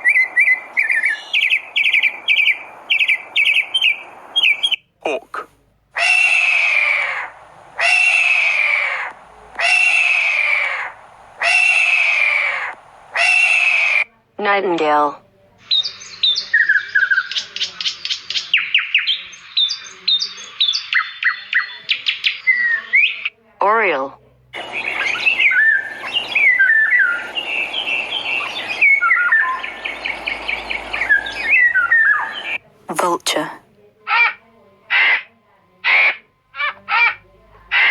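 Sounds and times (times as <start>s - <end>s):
hawk screaming: 6.0s - 14.0s
oriole singing: 24.6s - 33.7s.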